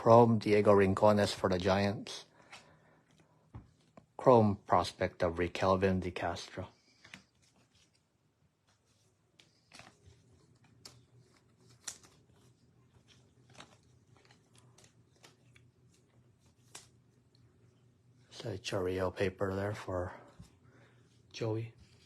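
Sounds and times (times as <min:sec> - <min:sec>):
trading cards clicking and rustling: 0:08.7 - 0:17.4.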